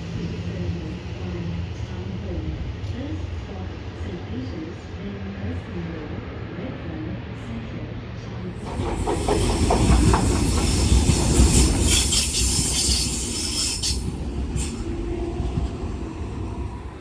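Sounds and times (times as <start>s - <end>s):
electric train rumble and hiss: 0.0s - 17.0s
train wheels clicking on rail joints: 8.6s - 17.0s.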